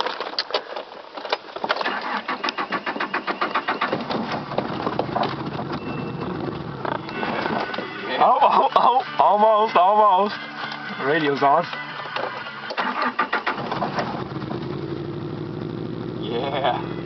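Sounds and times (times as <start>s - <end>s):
car engine cranking and starting: 1.8s - 8.0s, 11.4s - 17.0s.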